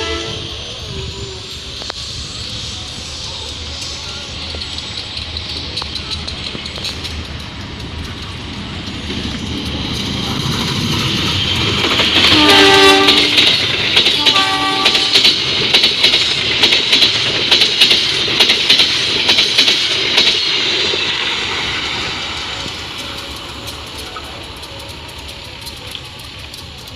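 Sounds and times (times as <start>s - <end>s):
train horn blasts: 0.0s - 0.6s, 12.2s - 15.3s
train passing at speed: 0.0s - 26.9s
train wheels clattering on rail joints: 1.5s - 26.9s.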